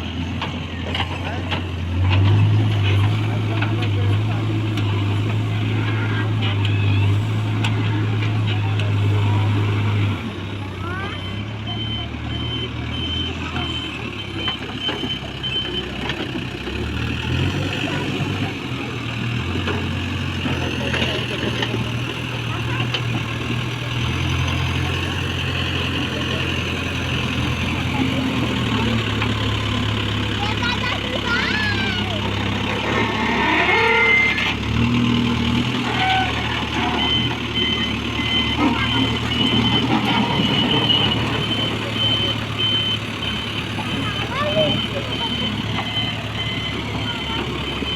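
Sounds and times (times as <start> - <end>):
diesel engine running: 0.0 - 47.9
reversing alarm beeping: 10.8 - 16.3, 22.5 - 34.5, 35.2 - 47.9.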